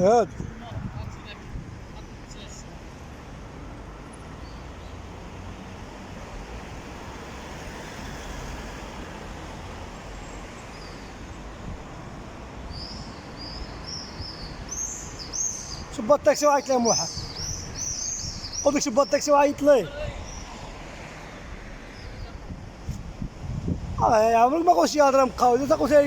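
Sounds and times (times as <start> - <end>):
small birds chirping: 12.7 - 20.8.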